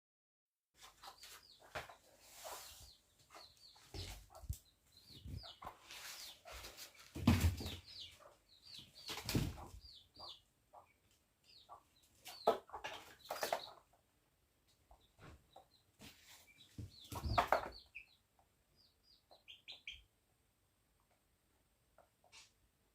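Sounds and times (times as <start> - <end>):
wings flapping and scuffling: 0.8 - 9.9, 12.1 - 13.8, 16.0 - 17.9
chicks peeping: 0.8 - 20.4.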